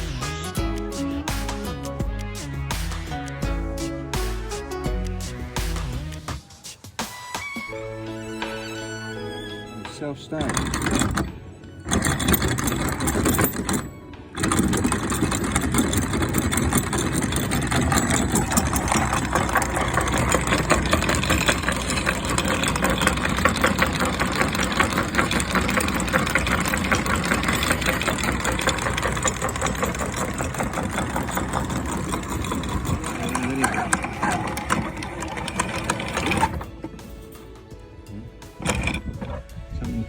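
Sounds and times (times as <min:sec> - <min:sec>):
boat engine chugging: 0:10.3 - 0:37.1.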